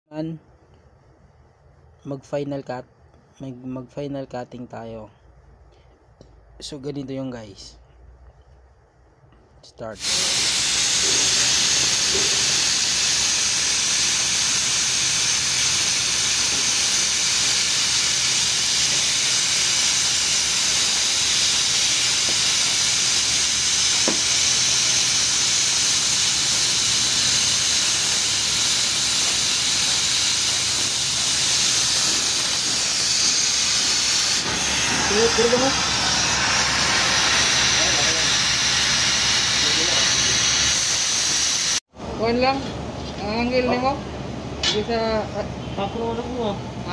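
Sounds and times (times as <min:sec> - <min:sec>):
cutting torch hissing: 0:10.0 - 0:41.9.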